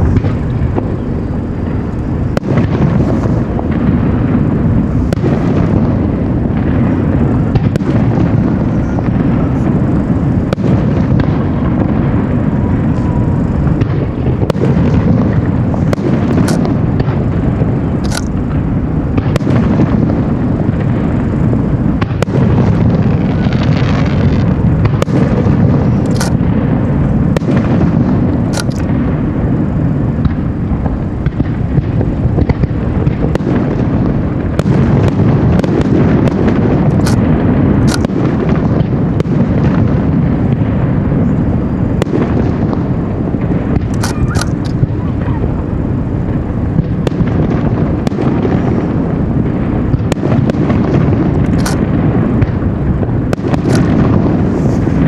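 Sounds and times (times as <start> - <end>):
fireworks bursts rumbling: 0.0 - 55.0
fireworks crackling and popping: 0.0 - 55.0.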